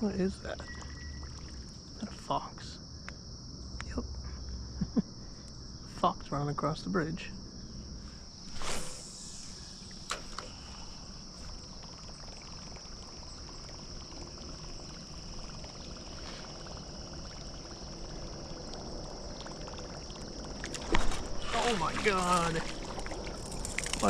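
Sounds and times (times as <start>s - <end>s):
crickets chirring: 0.0s - 24.0s
water lapping around kayak: 0.5s - 2.2s, 9.8s - 24.0s.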